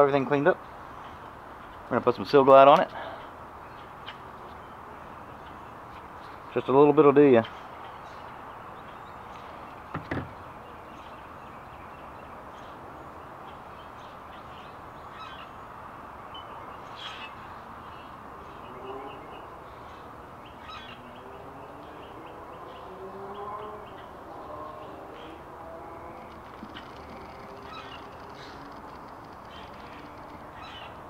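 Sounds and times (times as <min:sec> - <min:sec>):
birds calling: 0:00.0 - 0:31.0
short repeated bird calls: 0:26.0 - 0:31.0.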